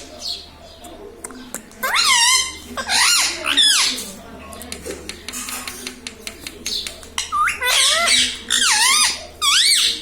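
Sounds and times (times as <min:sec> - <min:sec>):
parakeet squawking: 0:01.8 - 0:04.1, 0:07.2 - 0:10.0.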